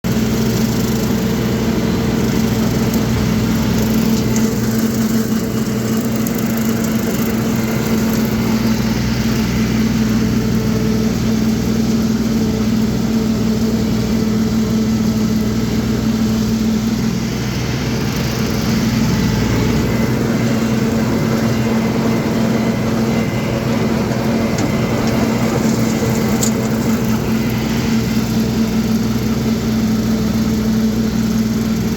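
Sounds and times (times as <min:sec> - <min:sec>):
tractor engine droning: 0:00.0 - 0:31.9.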